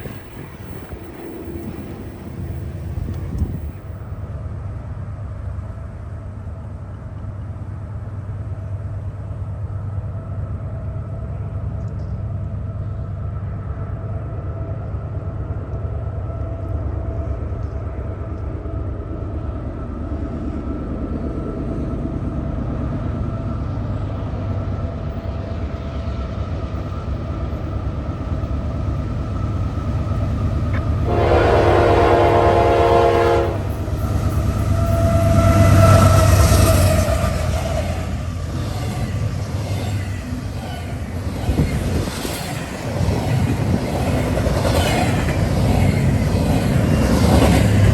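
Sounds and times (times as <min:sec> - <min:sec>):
train rumbling: 0:00.0 - 0:47.9
locomotive horn blast: 0:31.0 - 0:33.8.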